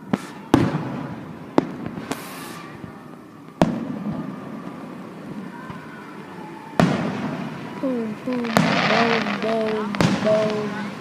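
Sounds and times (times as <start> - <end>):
firework crackling hiss: 0.0 - 11.0
fireworks bangs: 0.0 - 11.0.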